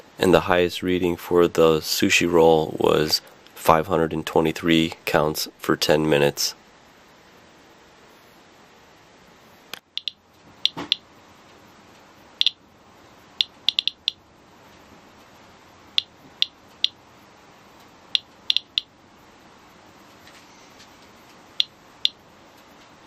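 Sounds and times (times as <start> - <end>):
geiger counter clicking: 9.8 - 11.0, 13.4 - 14.2, 18.1 - 18.9, 21.5 - 22.2.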